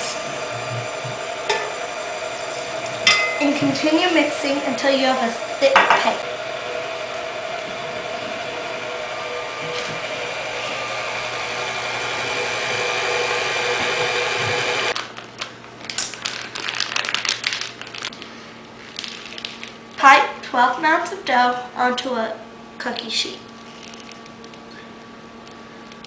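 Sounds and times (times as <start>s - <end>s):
electric mixer running: 0.0s - 15.0s.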